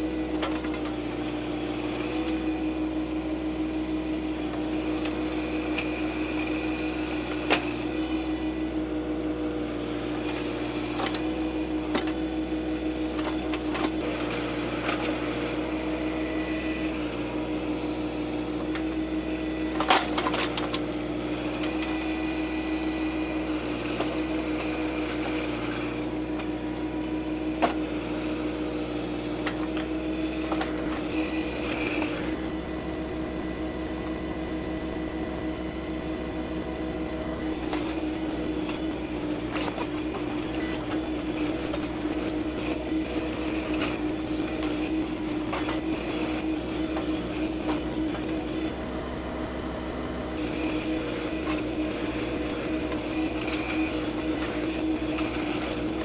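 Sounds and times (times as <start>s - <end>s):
high hydraulic whine: 0.0s - 56.0s
tractor diesel engine running: 13.2s - 56.0s.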